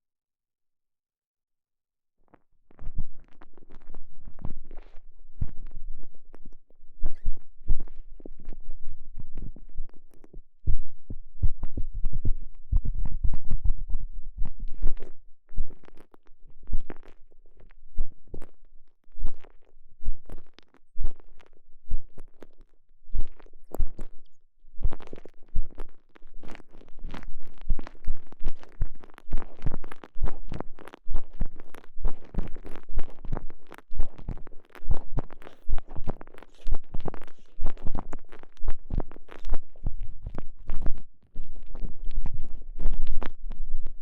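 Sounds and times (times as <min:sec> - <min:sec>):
muffled squishing strokes: 0:24.9 - 0:44.0.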